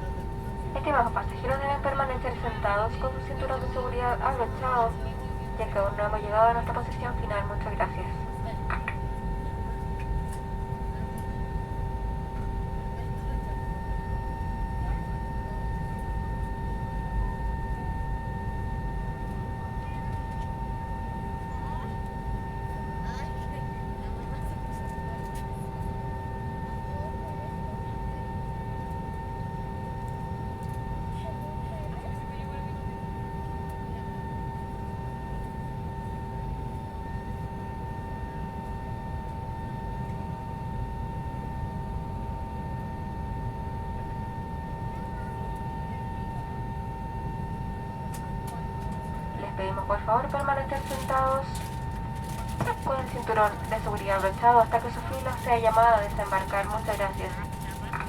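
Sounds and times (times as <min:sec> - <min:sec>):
airplane cabin rumble: 0:00.0 - 0:28.2, 0:42.1 - 0:58.0
jet engine whine at idle: 0:00.0 - 0:58.0.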